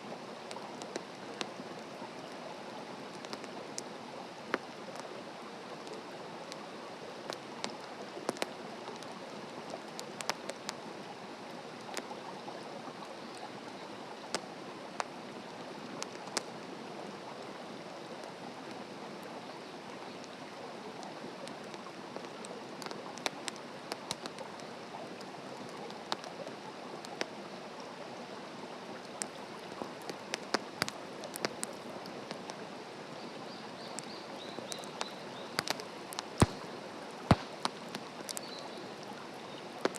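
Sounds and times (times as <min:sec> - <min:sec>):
campfire crackling: 0:00.4 - 0:02.3, 0:03.1 - 0:05.1, 0:05.7 - 0:10.9, 0:15.9 - 0:16.6, 0:20.2 - 0:27.4, 0:28.9 - 0:39.9.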